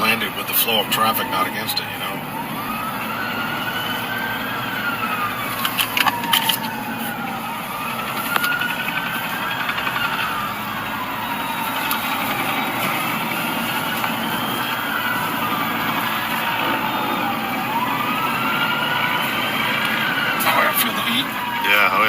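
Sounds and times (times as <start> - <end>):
emergency siren wailing: 0.0 - 22.0
traffic rumble: 0.0 - 22.0
sharp clicks: 5.5 - 6.8.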